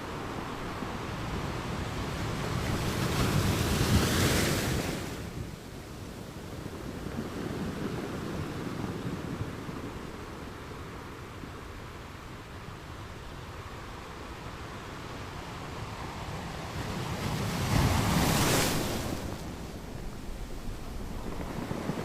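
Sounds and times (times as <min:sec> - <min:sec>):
ocean waves crashing: 0:16.4 - 0:22.0.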